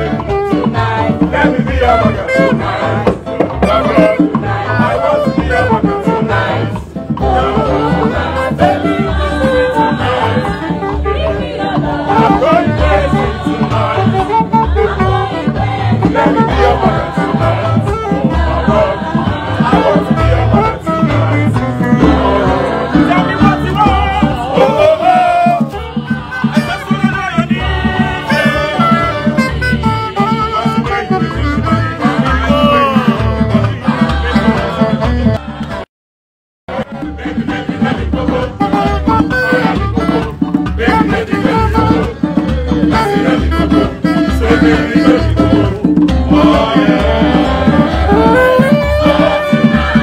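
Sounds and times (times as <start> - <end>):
band playing dance beat: 0.0 - 35.8, 36.7 - 50.0
drums and percussion: 0.0 - 35.9, 36.7 - 50.0
person singing: 16.1 - 27.0, 27.6 - 35.3, 40.8 - 50.0.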